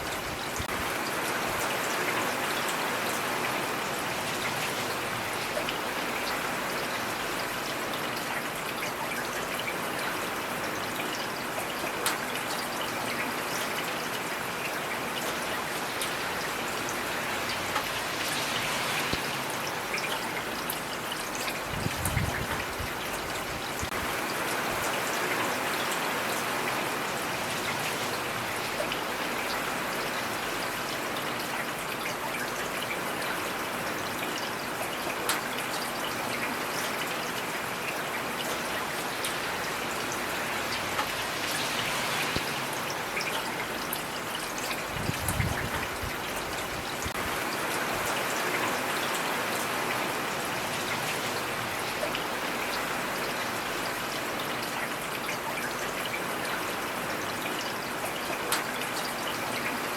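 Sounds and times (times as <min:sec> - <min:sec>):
heavy rain hissing: 0:17.0 - 0:19.9, 0:39.4 - 0:45.7.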